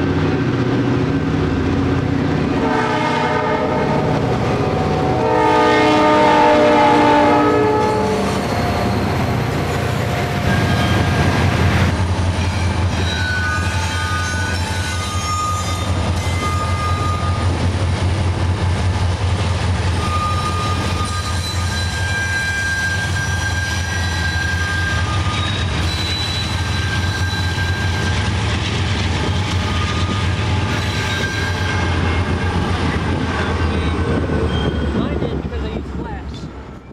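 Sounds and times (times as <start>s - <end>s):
train rumbling: 0.0s - 36.9s
train wheels squealing on rails: 7.8s - 18.1s, 19.6s - 35.2s.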